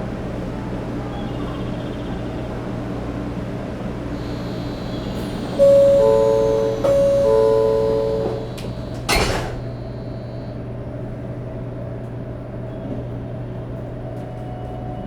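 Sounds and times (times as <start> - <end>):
train low hum: 0.0 - 15.0
two-note electronic chime: 5.6 - 8.6.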